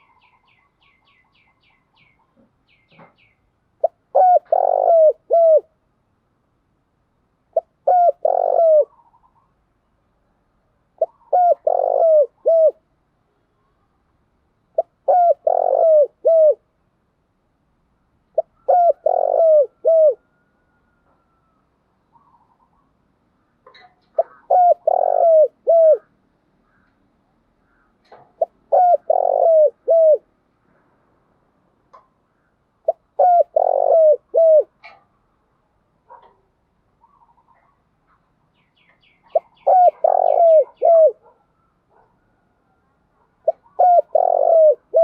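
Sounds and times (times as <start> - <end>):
dove cooing: 3.8 - 5.8, 7.5 - 9.4, 11.0 - 12.8, 14.8 - 16.7, 18.4 - 22.9, 23.7 - 26.8, 27.7 - 30.3, 32.8 - 35.0, 39.2 - 42.4, 43.2 - 45.0.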